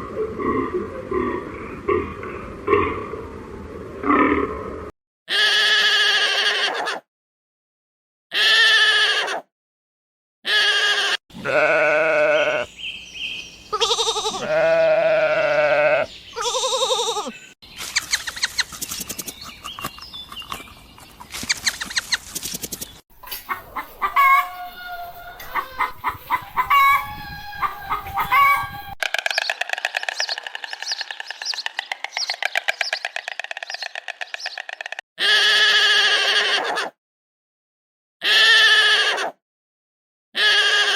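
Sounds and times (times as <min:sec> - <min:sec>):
farm animals bleating: 0:05.3 - 0:07.0, 0:08.3 - 0:09.4, 0:10.5 - 0:12.7, 0:13.7 - 0:17.4, 0:23.8 - 0:29.0, 0:35.2 - 0:36.9, 0:38.2 - 0:39.3, 0:40.4 - 0:40.9
bird chattering trill: 0:27.6 - 0:35.0.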